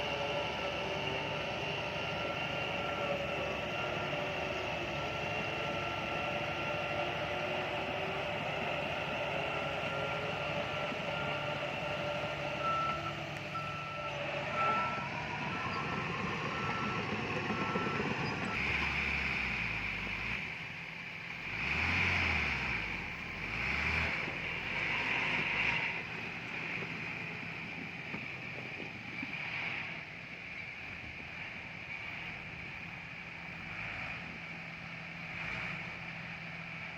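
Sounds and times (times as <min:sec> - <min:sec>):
reversing alarm beeping: 0:00.0 - 0:19.0
diesel engines running: 0:00.0 - 0:36.9.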